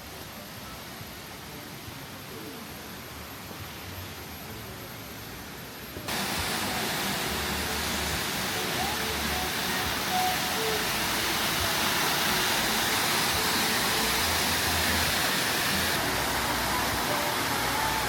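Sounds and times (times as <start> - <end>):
waterfall rushing water: 6.1 - 18.0.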